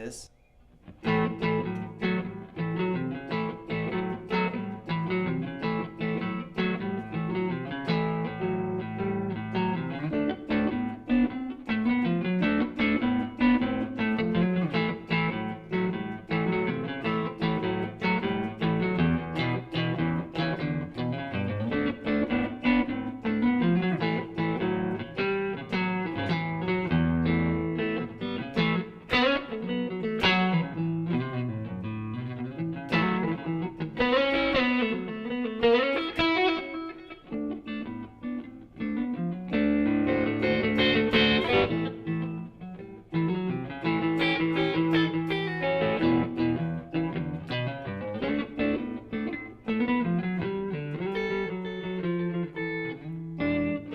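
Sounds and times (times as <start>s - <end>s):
clean electric guitar blues: 0.0s - 53.9s.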